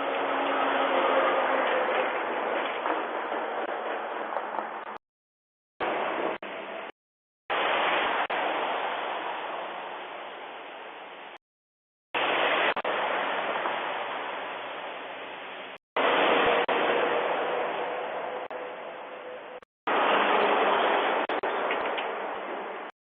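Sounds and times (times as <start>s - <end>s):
truck passing: 0.0s - 5.0s, 16.0s - 22.9s.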